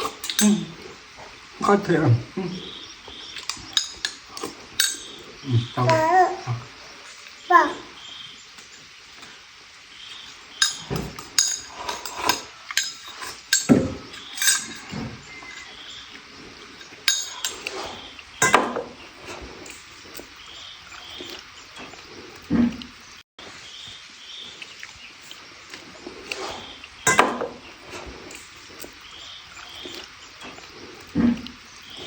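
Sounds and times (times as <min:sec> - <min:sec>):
utensils striking pots and dishes: 0:00.0 - 0:00.7, 0:03.4 - 0:05.2, 0:10.6 - 0:16.0, 0:16.8 - 0:19.9, 0:27.0 - 0:28.6.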